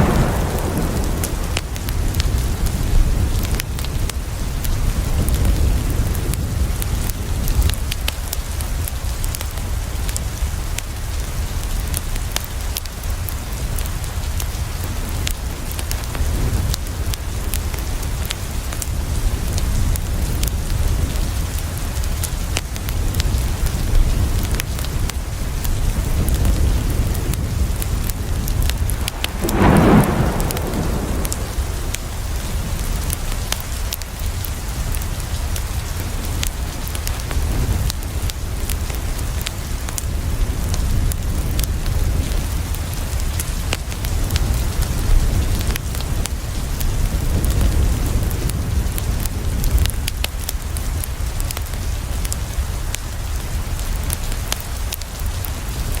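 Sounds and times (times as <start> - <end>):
low rumble: 0.0 - 3.3, 28.4 - 33.1
rain on a window: 0.0 - 56.0.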